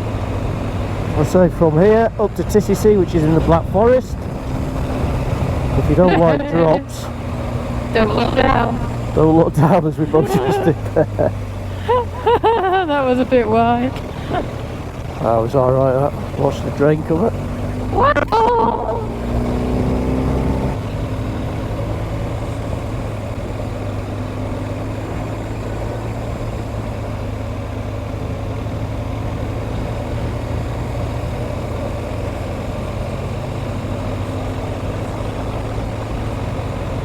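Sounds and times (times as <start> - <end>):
motorcycle engine running: 0.0 - 37.0
road noise: 0.0 - 37.0.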